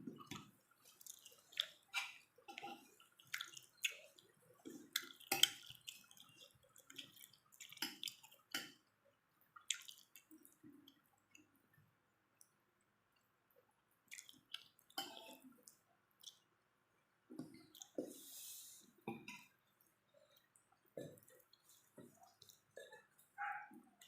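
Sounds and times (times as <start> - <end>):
chewing and mouth clicks: 0.2 - 8.8, 9.6 - 11.5, 14.1 - 16.5, 17.4 - 18.0, 19.3 - 24.0.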